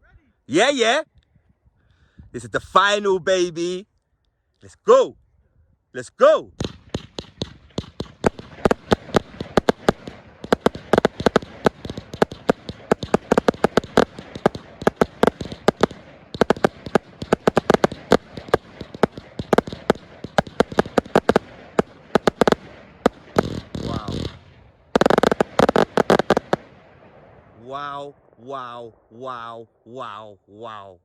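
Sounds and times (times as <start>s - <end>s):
firework barrage of sharp reports: 6.5s - 31.0s.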